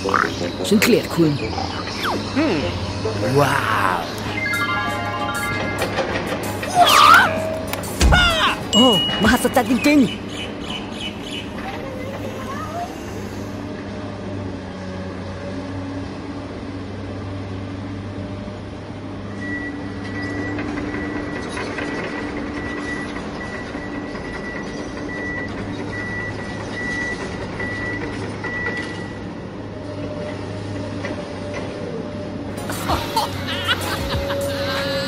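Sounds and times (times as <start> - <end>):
heavy vehicle engine drone: 0.0 - 35.0
high reversing alarm beeping: 4.3 - 6.2.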